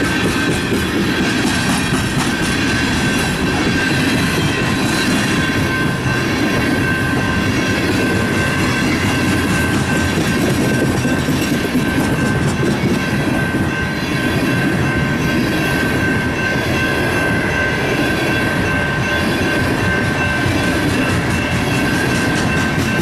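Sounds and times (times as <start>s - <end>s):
train wheels clattering over rails: 0.0s - 13.8s, 19.5s - 23.0s
high-pitched ringing: 0.0s - 23.0s
train rumble: 0.0s - 23.0s.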